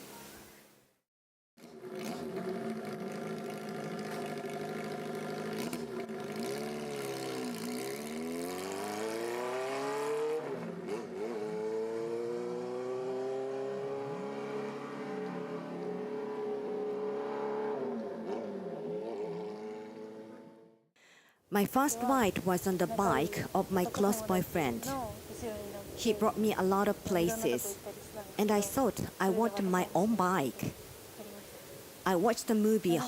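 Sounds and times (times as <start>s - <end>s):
motorcycle engine accelerating: 1.6s - 20.8s.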